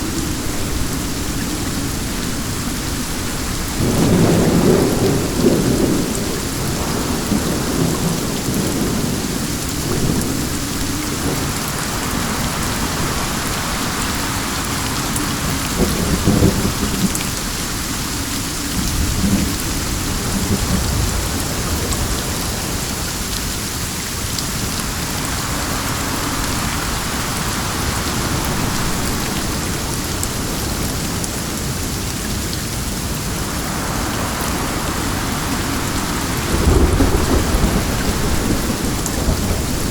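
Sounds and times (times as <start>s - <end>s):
rolling thunder: 0.0s - 17.8s, 18.5s - 23.0s, 33.1s - 39.9s
rain pouring: 0.0s - 39.9s.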